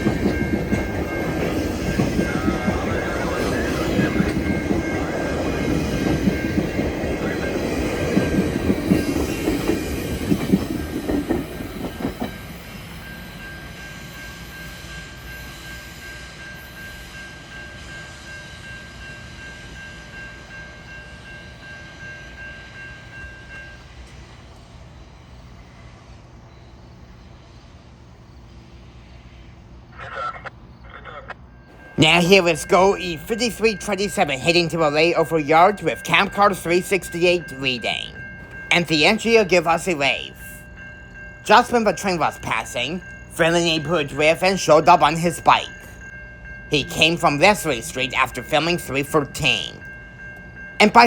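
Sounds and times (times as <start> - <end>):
steady high tone: 0.0 - 8.4, 30.0 - 51.0
commuter train passing: 0.0 - 51.0.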